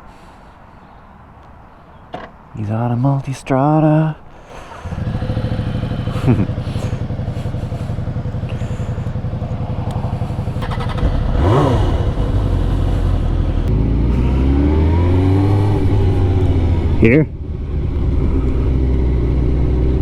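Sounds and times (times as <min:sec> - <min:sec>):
motorcycle engine idling: 0:04.8 - 0:20.0.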